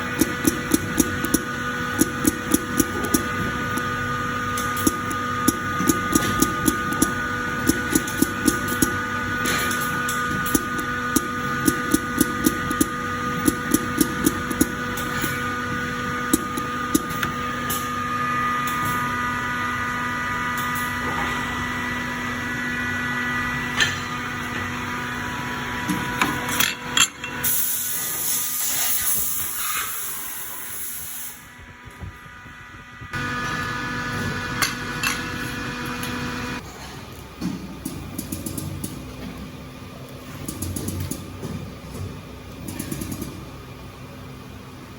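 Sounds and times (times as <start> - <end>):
rapid machine clicking: 0.0 - 3.9, 4.5 - 9.0, 9.6 - 15.3
machine motor whine: 0.0 - 36.6.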